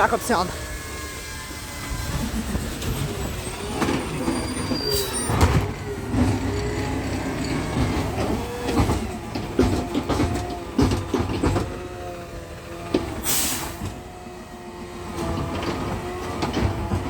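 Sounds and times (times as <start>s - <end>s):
squealing and whining machinery: 0.0s - 13.2s
garbage truck engine running: 0.0s - 17.0s.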